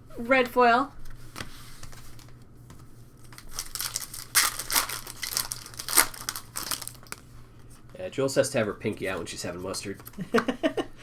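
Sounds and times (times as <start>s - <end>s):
foil wrapper crinkling and tearing: 3.2s - 7.3s.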